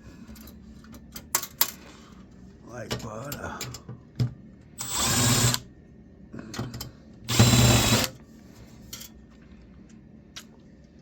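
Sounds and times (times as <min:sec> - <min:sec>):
electric drill whirring: 0:04.8 - 0:05.6, 0:07.3 - 0:08.2.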